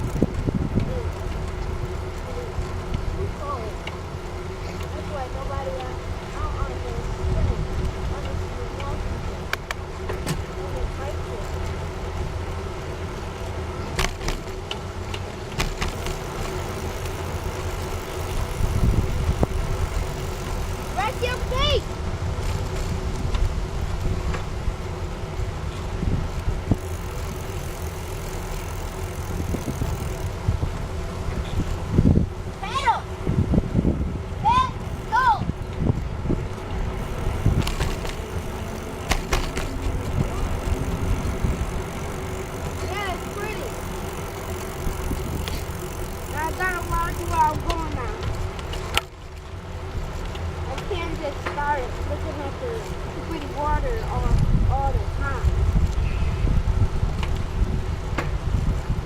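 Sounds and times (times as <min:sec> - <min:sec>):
bicycle rumbling along trail: 0:00.0 - 0:59.0
sharp rattling clicks: 0:37.0 - 0:49.2.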